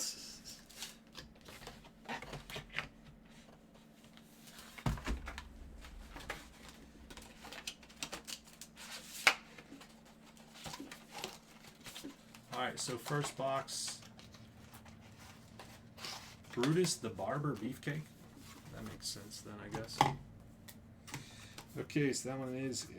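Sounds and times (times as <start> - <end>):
dull thump: 4.8 - 7.5
cards rustling and clicking: 7.0 - 21.8.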